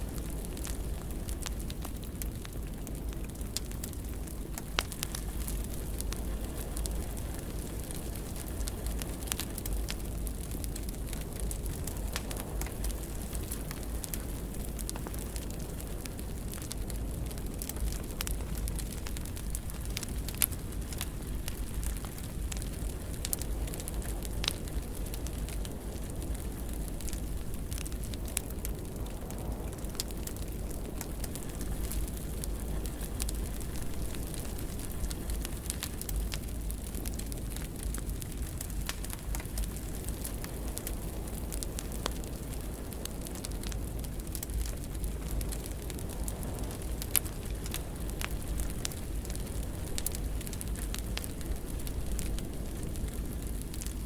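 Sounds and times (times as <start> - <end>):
fire crackling in fireplace: 0.0 - 54.0
low rumble of flames: 0.0 - 54.0
sharp fire pops: 0.1 - 54.0.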